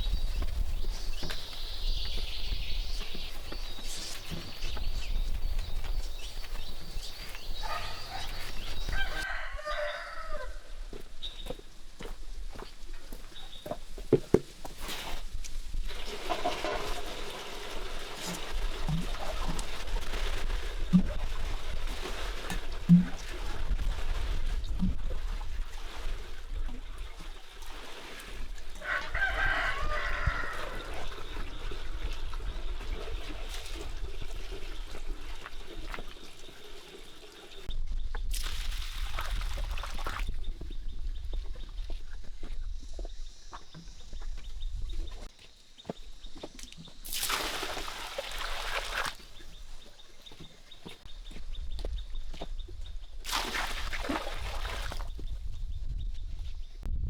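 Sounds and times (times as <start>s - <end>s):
rural background: 0.0s - 57.0s
rooster crowing: 8.9s - 10.8s, 28.8s - 31.0s.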